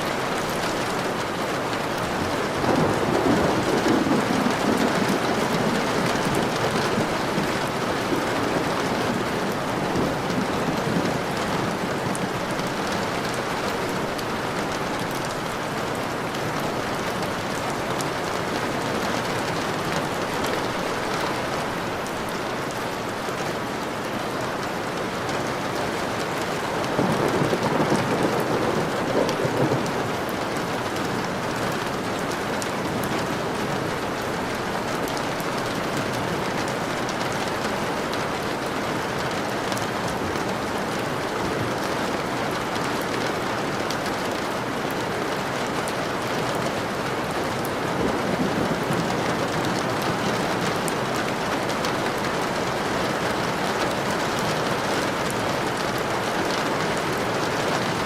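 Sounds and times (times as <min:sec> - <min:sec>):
thunder rumbling: 0:00.0 - 0:21.8, 0:26.8 - 0:32.0, 0:47.3 - 0:58.0
heavy rain falling: 0:00.0 - 0:58.0
raindrops ticking on a surface: 0:00.0 - 0:58.0.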